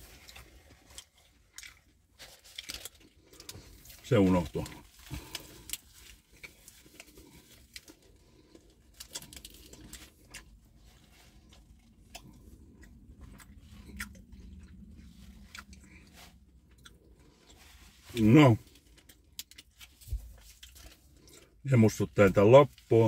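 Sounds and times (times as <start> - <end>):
person chewing with mouth closed: 0.0 - 4.0, 4.7 - 18.1, 18.7 - 21.6.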